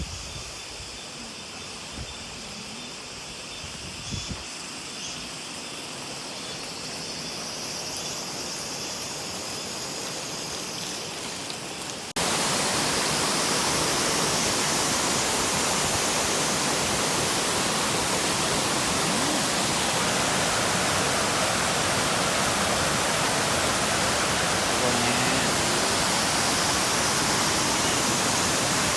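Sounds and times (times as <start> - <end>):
waterfall rushing: 12.1 - 28.9.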